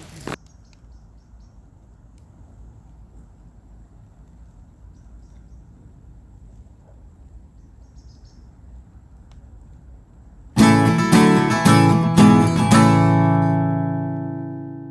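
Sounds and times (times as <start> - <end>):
acoustic guitar music: 10.6 - 14.9.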